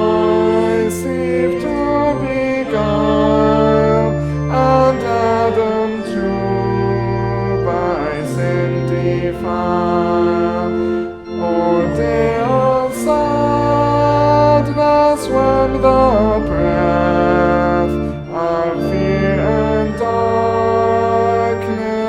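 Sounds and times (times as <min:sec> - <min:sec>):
church organ chords: 0:00.0 - 0:22.0
voices singing a hymn: 0:00.0 - 0:22.0.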